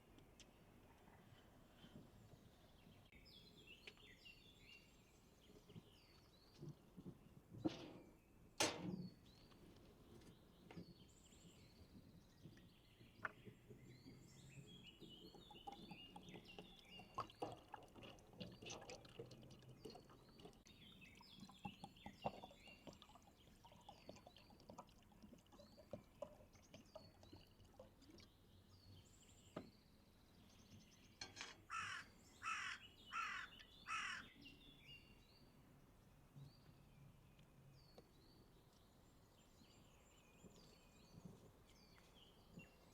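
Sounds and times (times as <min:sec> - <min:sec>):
small birds chirping: 0:00.4 - 0:07.8, 0:09.0 - 0:35.8, 0:36.4 - 0:42.9
loud bird calls: 0:31.3 - 0:34.5.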